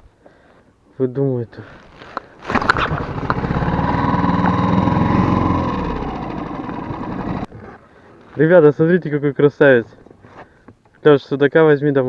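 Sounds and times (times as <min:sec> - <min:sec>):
outboard motor running: 0:02.4 - 0:07.8.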